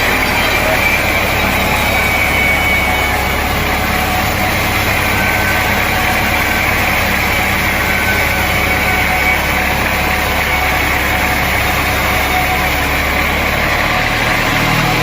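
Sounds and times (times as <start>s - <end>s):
faint high whine: 0.0s - 15.0s
sawmill machinery drone: 0.0s - 15.0s.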